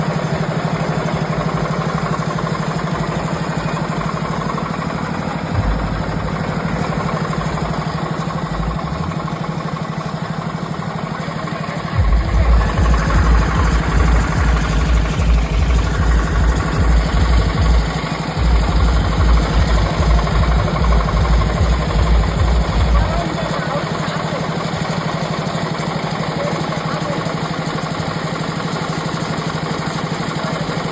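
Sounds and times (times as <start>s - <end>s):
drilling rig engine running: 0.0s - 30.9s
deep rapid thudding: 5.5s - 9.2s, 11.9s - 23.2s.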